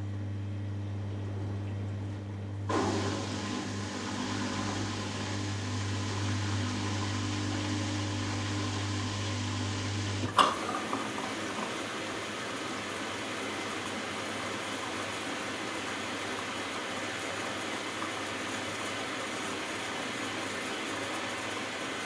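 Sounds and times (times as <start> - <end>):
drain pump humming: 0.0 - 22.0
pump switching off click: 2.7 - 12.0.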